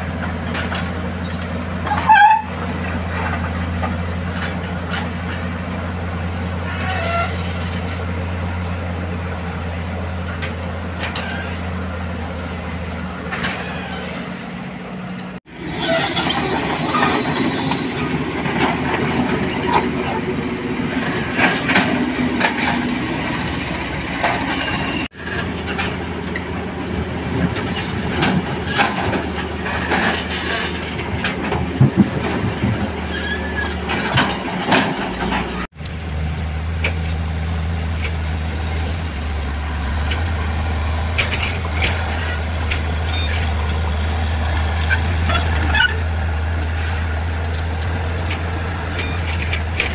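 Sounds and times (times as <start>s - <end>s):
excavator diesel engine: 0.0s - 49.9s
bucket and track squeals: 0.5s - 12.2s, 13.0s - 14.6s, 15.5s - 49.9s
metal clanks: 27.4s - 35.7s.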